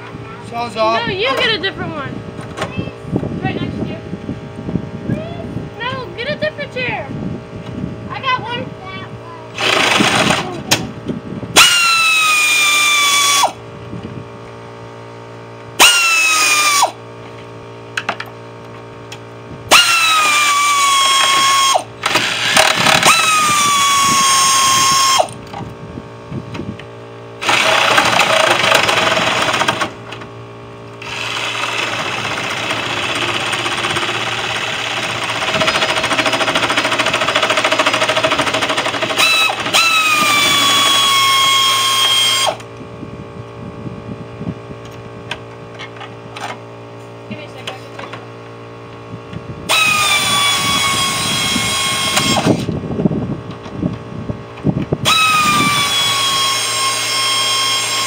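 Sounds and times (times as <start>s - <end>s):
electric power saw cutting: 9.6s - 10.5s, 11.5s - 13.6s, 15.8s - 17.0s, 19.7s - 25.4s, 27.4s - 30.2s, 30.9s - 42.7s, 49.7s - 52.8s, 55.0s - 58.0s.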